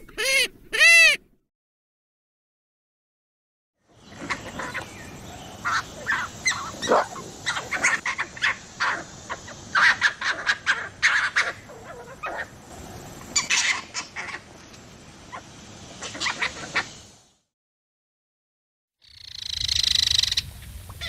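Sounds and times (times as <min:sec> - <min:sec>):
fox yipping and barking: 0:05.6 - 0:12.5, 0:13.4 - 0:14.4.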